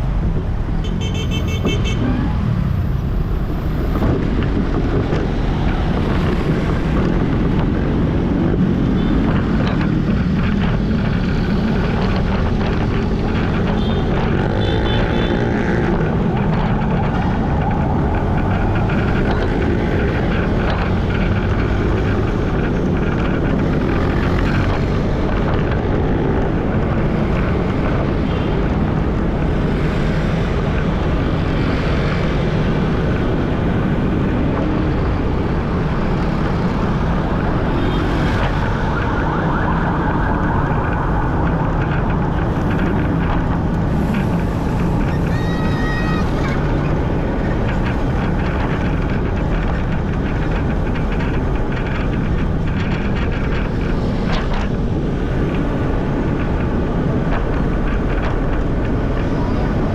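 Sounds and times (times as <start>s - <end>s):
street traffic: 0.0s - 59.9s
wind rushing over microphone: 0.0s - 59.9s.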